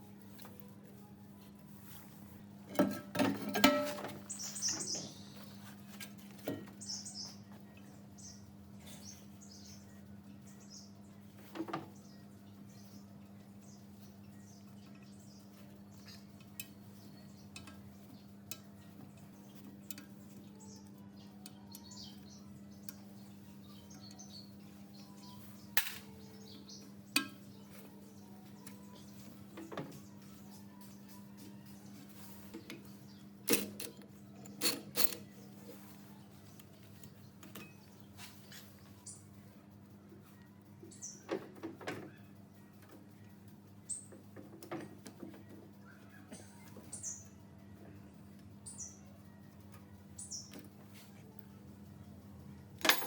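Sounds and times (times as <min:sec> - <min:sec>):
metal clinks and knocks: 0:02.7 - 0:04.2, 0:52.8 - 0:53.0.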